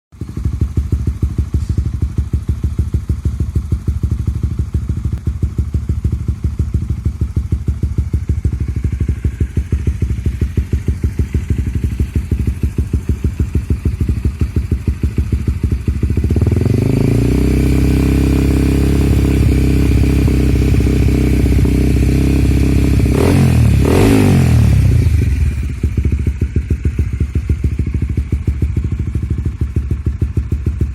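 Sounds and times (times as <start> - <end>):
motorcycle engine idling and revving: 0.1 - 30.9.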